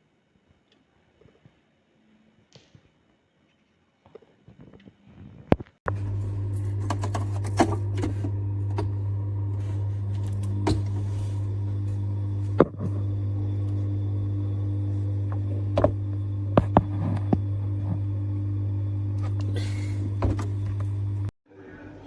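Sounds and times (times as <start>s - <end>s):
espresso machine pump hum: 5.9s - 21.3s.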